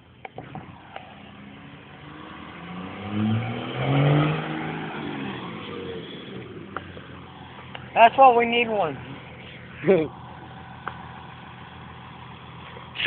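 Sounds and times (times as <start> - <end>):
vehicle driving past: 0.8 - 7.8.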